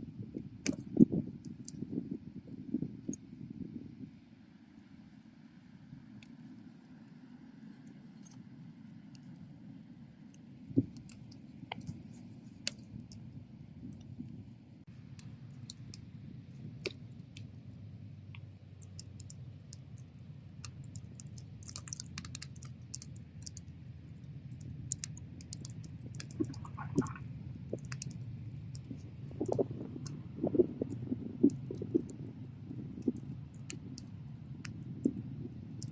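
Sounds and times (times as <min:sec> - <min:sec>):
low rumble of flames: 0:00.0 - 0:35.9
wood crackling and popping: 0:10.7 - 0:35.9.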